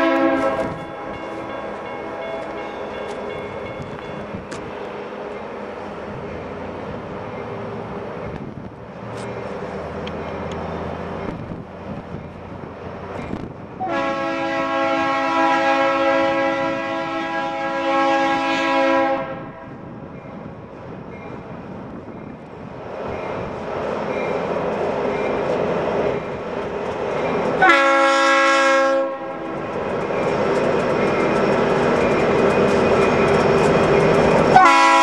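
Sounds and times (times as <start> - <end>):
train horn chord: 0.0 - 3.2, 13.8 - 19.8, 27.6 - 29.5, 34.5 - 35.0
diesel locomotive engine drone: 0.0 - 35.0
train rumble: 0.0 - 35.0.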